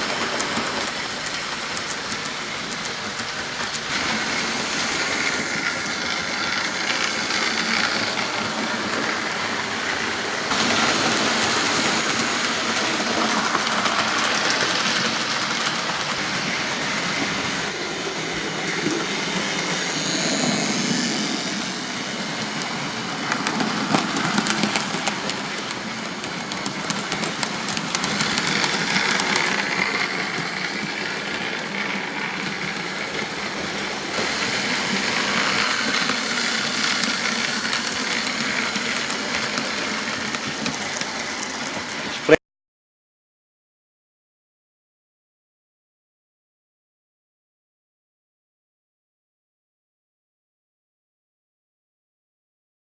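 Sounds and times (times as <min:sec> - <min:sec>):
model train wheels rattling on rail: 0:00.0 - 0:42.3.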